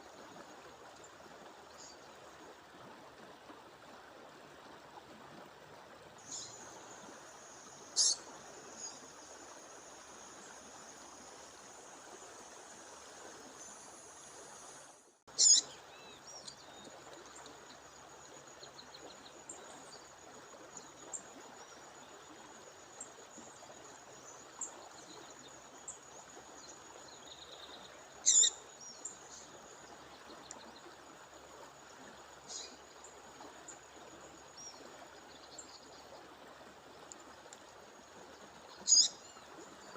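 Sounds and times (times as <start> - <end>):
songbird chirping: 25.8 - 31.0.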